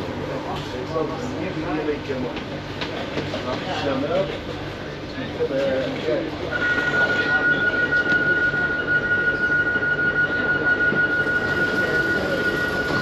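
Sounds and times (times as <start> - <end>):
train low rumble: 0.0 - 13.0
train high-pitched whine: 6.1 - 13.0.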